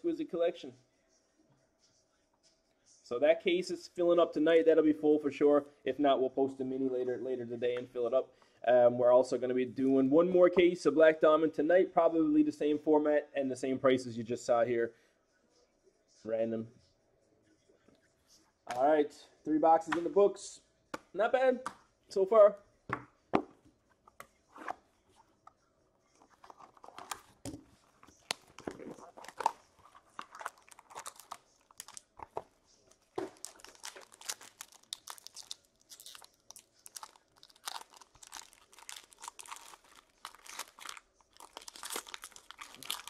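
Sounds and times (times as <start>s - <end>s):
plastic wrapping crinkling: 26.3s - 43.0s.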